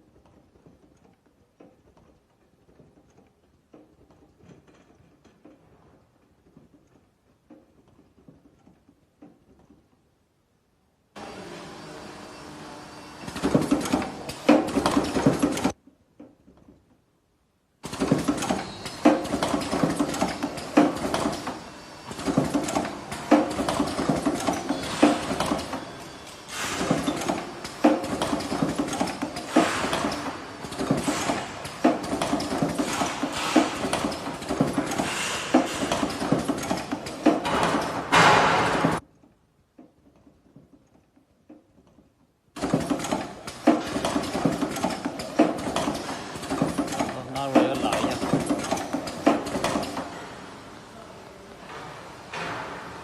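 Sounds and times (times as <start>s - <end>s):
welding machine clattering and clicking: 17.8s - 21.6s, 22.2s - 39.0s, 42.6s - 50.2s.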